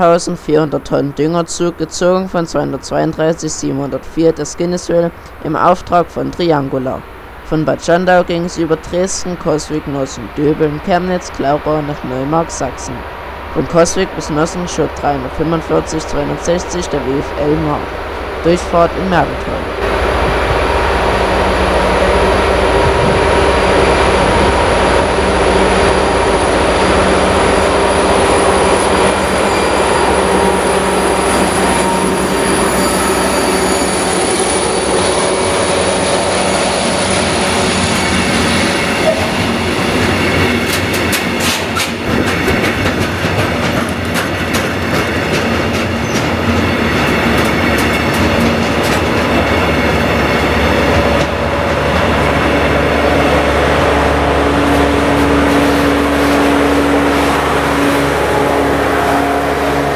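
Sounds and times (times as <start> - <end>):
diesel locomotive engine droning: 0.0 - 59.9
wagon wheels clattering over rail joints: 39.0 - 52.3.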